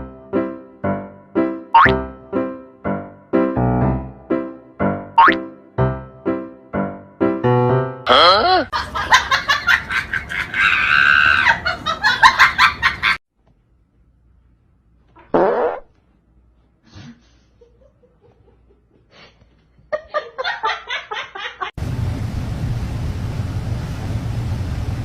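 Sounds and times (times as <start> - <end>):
people laughing: 8.6 - 13.2, 17.2 - 21.8
steady low hum: 21.8 - 25.0.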